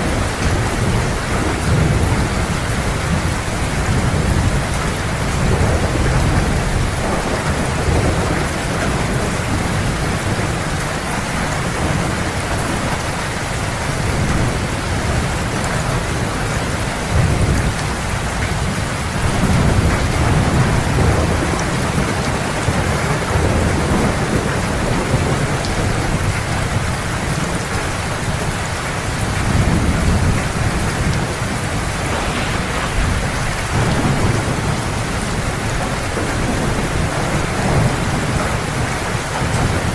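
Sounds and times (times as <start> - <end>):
heavy rain falling: 0.0 - 39.9
thunder rumbling: 29.5 - 38.6.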